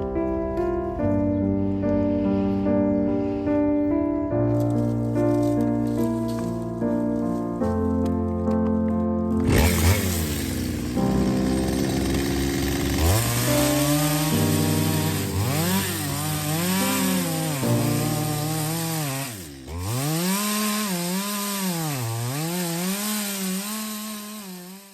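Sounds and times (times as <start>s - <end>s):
chainsaw cutting wood: 4.5s - 8.2s, 9.3s - 24.9s.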